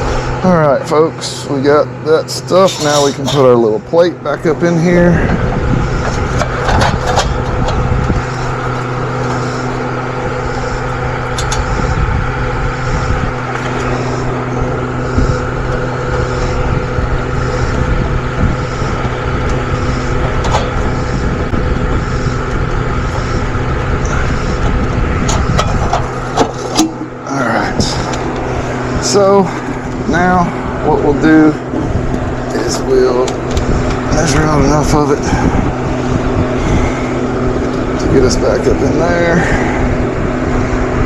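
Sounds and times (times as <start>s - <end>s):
mechanical drone: 0.0s - 41.0s.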